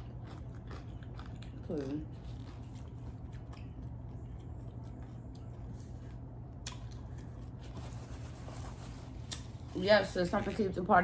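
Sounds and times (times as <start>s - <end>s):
close-up chewing: 0.0s - 7.6s
low electrical hum: 0.0s - 11.0s.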